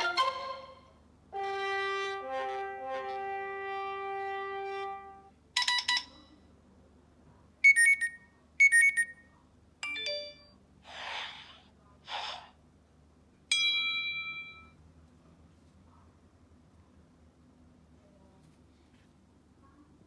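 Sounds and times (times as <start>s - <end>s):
phone alert chime: 9.8s - 10.5s.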